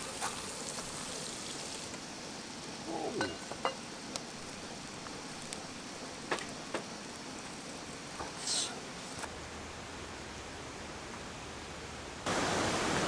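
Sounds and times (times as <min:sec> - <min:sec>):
campfire crackling and popping: 0:00.0 - 0:09.3
steady hiss: 0:00.0 - 0:13.0.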